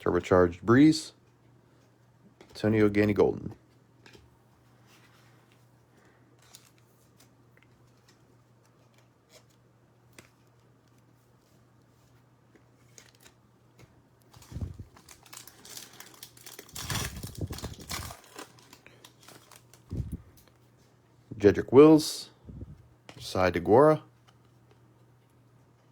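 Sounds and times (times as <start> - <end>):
card pack wrapper tearing: 14.3 - 20.2.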